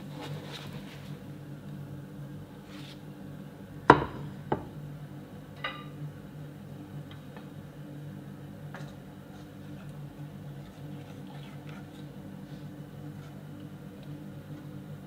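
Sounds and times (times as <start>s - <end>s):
steady low hum: 0.0s - 15.0s
kitchenware knocking: 3.9s - 4.7s.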